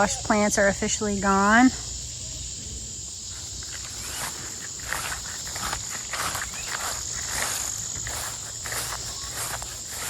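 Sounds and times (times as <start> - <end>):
crickets chirping: 0.0 - 10.0
footsteps swishing through grass: 3.3 - 10.0.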